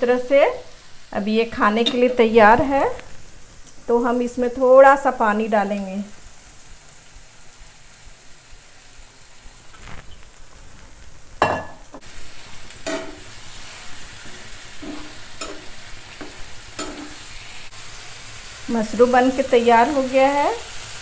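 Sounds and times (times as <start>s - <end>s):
food sizzling in a hot pan: 0.0s - 21.0s
spoon knocking against pan: 12.8s - 13.2s, 14.8s - 17.2s
spoon scraping a pan: 12.8s - 17.4s.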